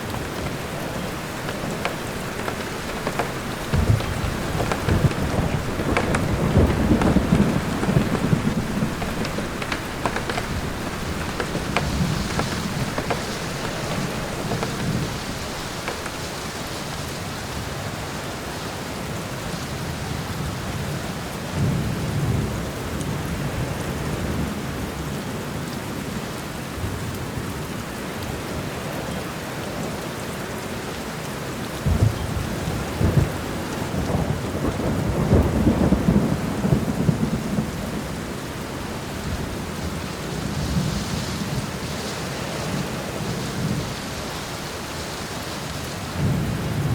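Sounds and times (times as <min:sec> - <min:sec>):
thunder clap: 0:00.0 - 0:17.1
thunder rumbling: 0:00.0 - 0:17.1
steady rain falling: 0:00.0 - 0:46.9.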